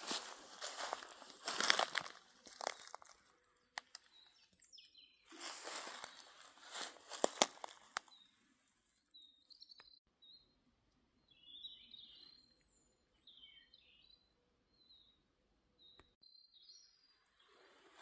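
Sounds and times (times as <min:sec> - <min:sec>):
songbirds chirping and trilling: 0:00.0 - 0:18.0
sharp clicks or crunches: 0:07.0 - 0:08.1.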